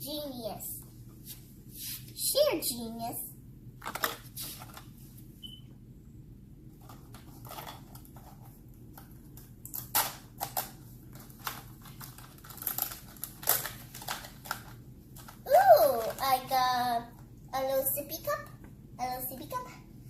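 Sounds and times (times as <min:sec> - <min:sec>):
low steady hum: 0:00.0 - 0:20.0
cardboard and plastic rustling: 0:03.8 - 0:05.3, 0:06.8 - 0:16.5.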